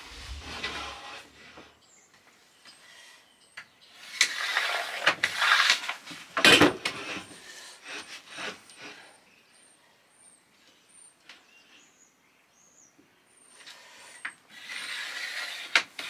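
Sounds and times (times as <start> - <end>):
spirit level scraping on plywood: 0.0 - 1.8, 14.6 - 16.0.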